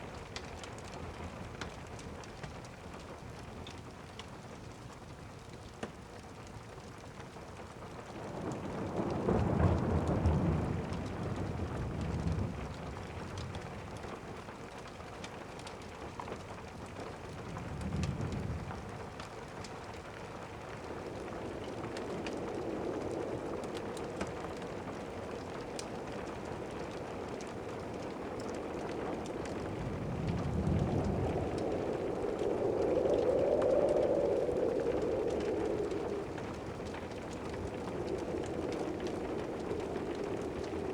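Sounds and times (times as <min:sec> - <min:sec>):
steady rain: 0:00.0 - 0:40.9
rolling thunder: 0:08.2 - 0:13.5, 0:20.7 - 0:40.9
log fire crackling: 0:12.0 - 0:40.9.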